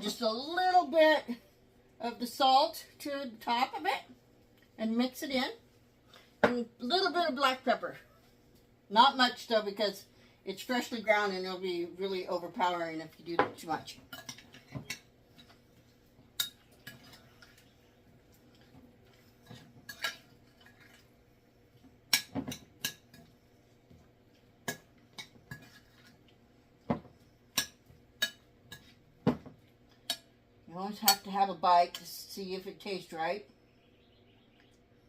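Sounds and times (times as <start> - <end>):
utensil clinking and scraping bowl: 13.4 - 21.1, 24.3 - 29.0.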